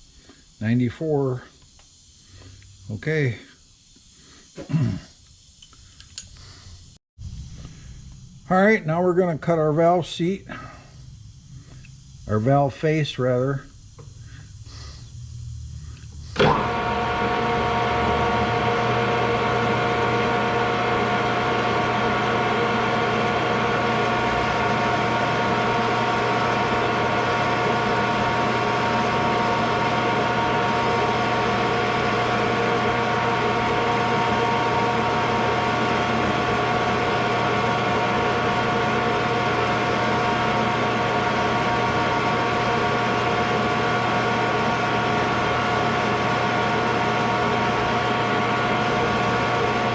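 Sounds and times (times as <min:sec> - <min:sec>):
metal lathe humming: 0:16.3 - 0:49.9.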